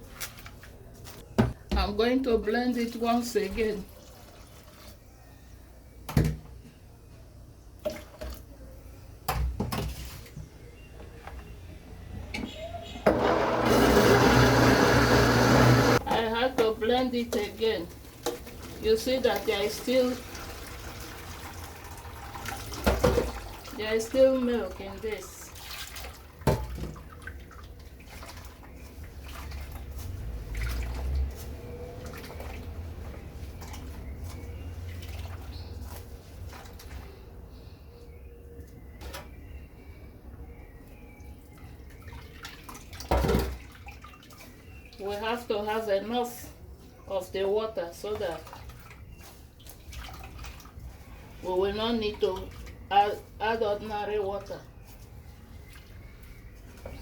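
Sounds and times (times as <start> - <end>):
liquid splashing: 18.2 - 37.0, 48.0 - 51.4.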